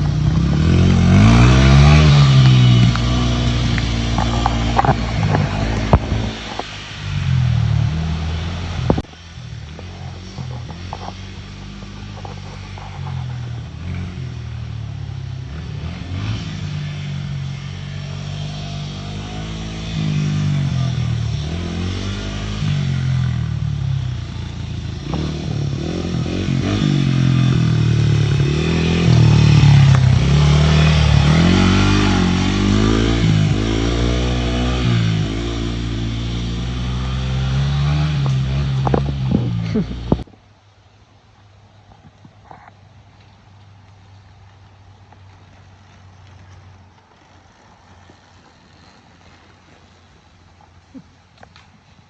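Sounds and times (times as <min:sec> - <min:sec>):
dirt bike engine revving: 0:00.0 - 0:40.3.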